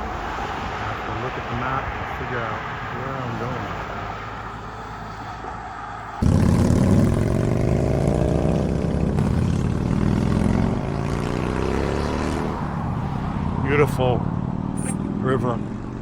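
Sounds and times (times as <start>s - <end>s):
motorcycle engine accelerating: 6.2s - 16.0s.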